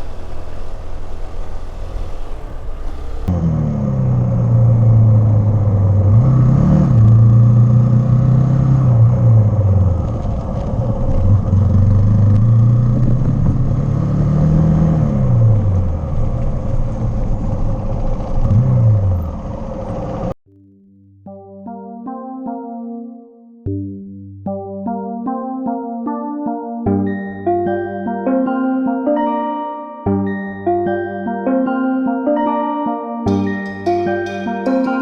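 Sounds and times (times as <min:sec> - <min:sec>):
motorcycle engine revving: 0:00.0 - 0:20.3.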